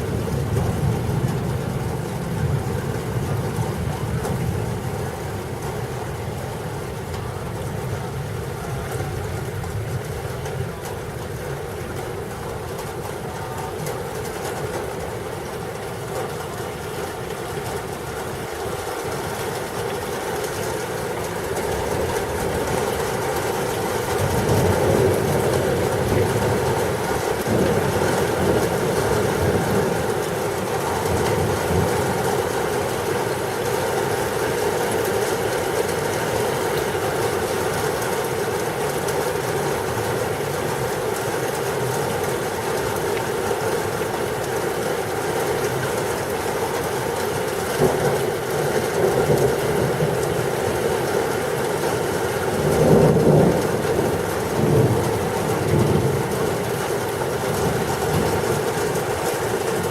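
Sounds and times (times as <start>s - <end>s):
steady rain: 0.0s - 59.9s
wind: 0.0s - 59.9s
low rumble of thunder: 52.5s - 58.9s.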